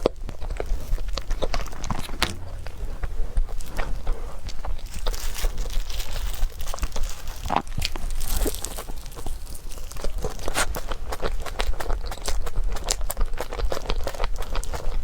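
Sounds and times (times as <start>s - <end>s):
dessert crunching and chewing: 3.7s - 15.0s.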